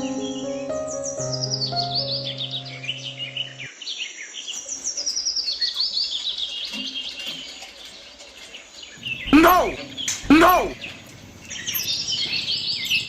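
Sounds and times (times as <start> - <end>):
background music: 0.0 - 3.7
birds chirping: 0.0 - 13.0.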